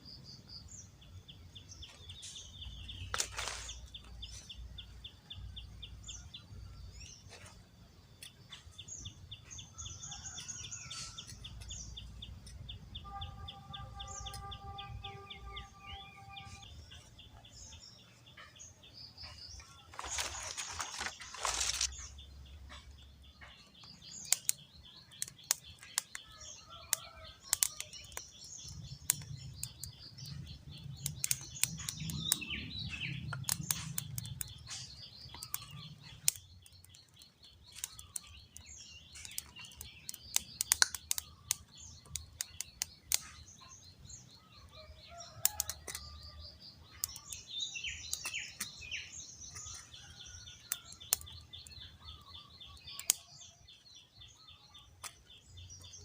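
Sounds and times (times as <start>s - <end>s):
birds chirping: 0.0s - 56.0s
sharp clicks: 23.8s - 26.2s, 26.9s - 30.0s, 30.9s - 43.4s, 50.6s - 53.3s.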